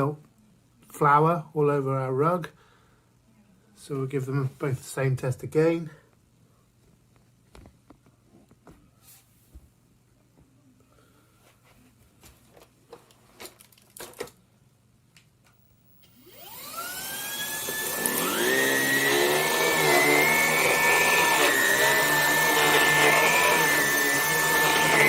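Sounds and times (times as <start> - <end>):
vacuum cleaner motor whine: 15.8 - 25.0.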